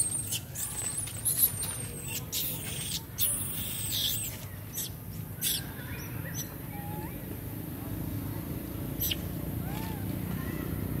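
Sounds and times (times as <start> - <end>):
baby monkey squeaking: 0.0 - 7.1, 9.0 - 10.0.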